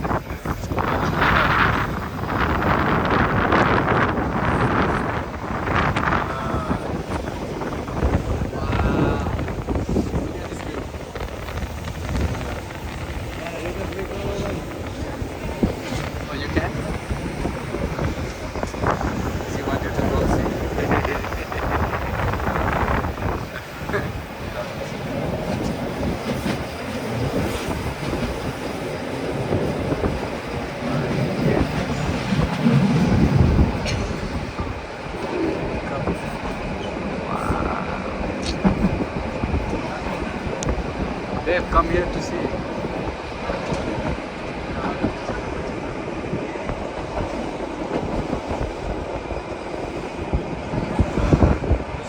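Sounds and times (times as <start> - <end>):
rail clacks: 0.0 - 52.0
train wheels rumbling on rails: 0.0 - 52.0.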